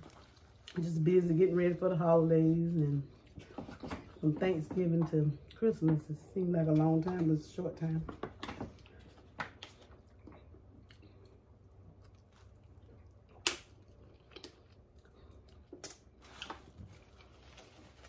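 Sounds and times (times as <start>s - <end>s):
person chewing: 0.0s - 0.8s, 8.8s - 16.6s.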